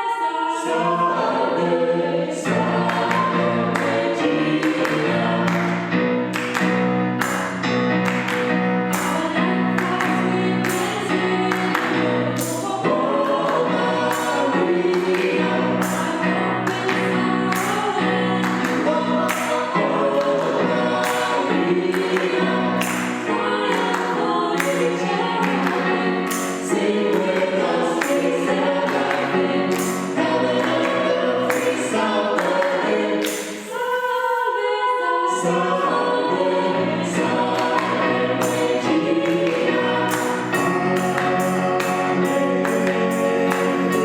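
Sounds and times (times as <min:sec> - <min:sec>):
choir singing a hymn: 0:00.0 - 0:44.0.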